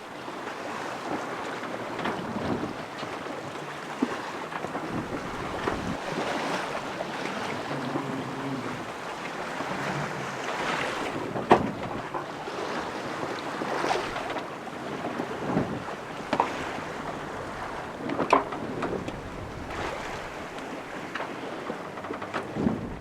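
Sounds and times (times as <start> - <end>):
wind and waves rushing: 0.0 - 23.0
knocks on boat: 2.0 - 2.8, 4.0 - 8.9, 9.6 - 14.5, 15.1 - 23.0
wind on microphone: 2.1 - 2.9, 4.7 - 14.3, 15.2 - 23.0.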